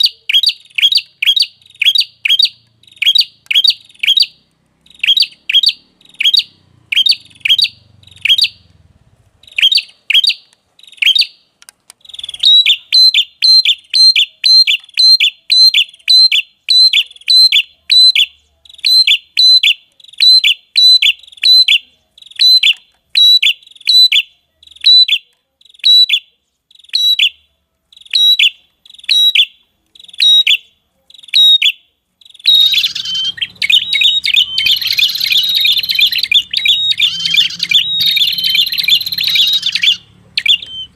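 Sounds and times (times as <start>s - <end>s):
bird chattering song: 0.0s - 8.8s, 9.4s - 40.9s
bird calling sharp short notes: 32.5s - 40.9s.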